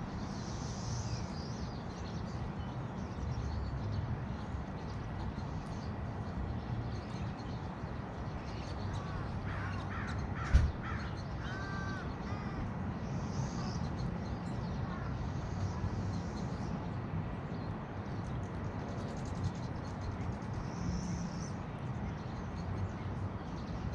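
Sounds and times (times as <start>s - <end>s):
crow cawing: 9.0s - 12.6s.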